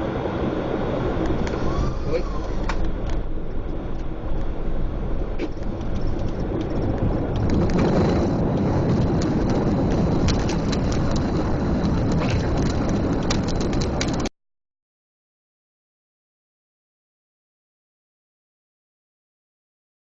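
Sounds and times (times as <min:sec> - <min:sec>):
aircraft cockpit rumble: 0:00.0 - 0:14.3
small rattles and clicks: 0:05.5 - 0:14.3.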